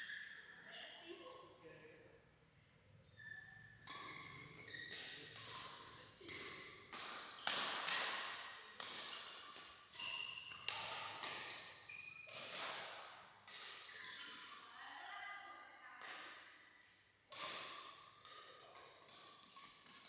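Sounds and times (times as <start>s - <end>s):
shoes squeaking on court: 3.2s - 7.6s
rackets hitting shuttlecock: 4.9s - 14.6s, 16.0s - 16.6s, 17.3s - 20.0s.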